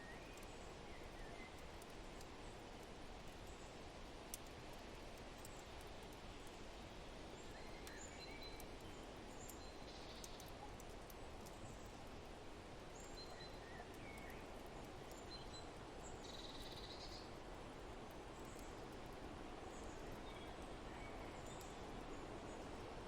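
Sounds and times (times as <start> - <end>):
steady wind-like hiss: 0.0 - 23.0
fire crackling: 13.9 - 16.2.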